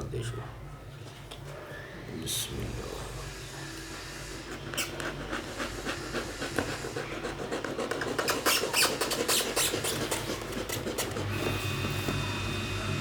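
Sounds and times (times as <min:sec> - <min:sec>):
scratchy clicks and scrapes on leather: 0:04.5 - 0:12.3.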